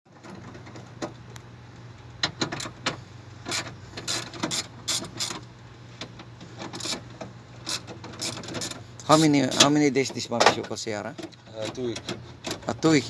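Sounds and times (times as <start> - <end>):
metal clicks and rattles: 2.2 - 5.4, 6.0 - 13.0.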